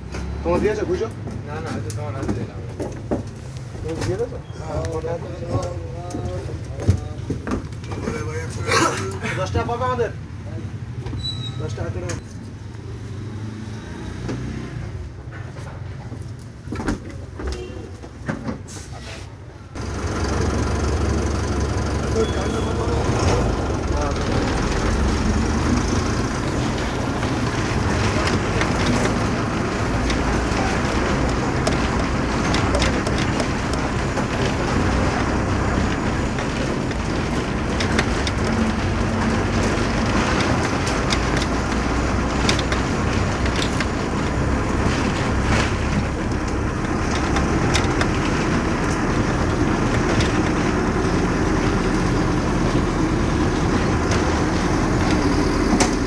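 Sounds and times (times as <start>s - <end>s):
road and traffic noise: 0.0s - 56.0s
vehicle engine running: 19.8s - 56.0s.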